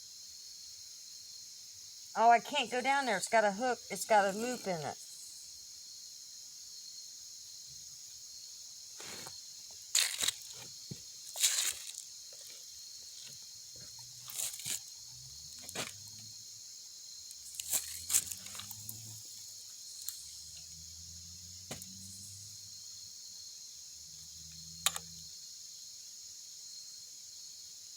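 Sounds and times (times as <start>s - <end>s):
crickets chirping: 0.0s - 27.9s
faint low hum: 17.2s - 23.1s.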